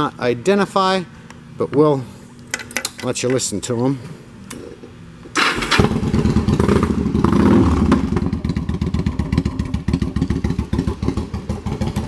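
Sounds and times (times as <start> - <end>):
motorcycle engine starting and idling: 5.3 - 12.0.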